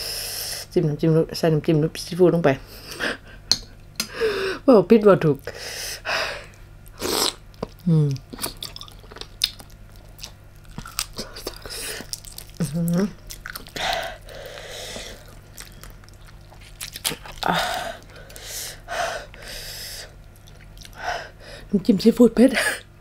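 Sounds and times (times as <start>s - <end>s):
crunchy chewing and biting: 6.8s - 18.4s.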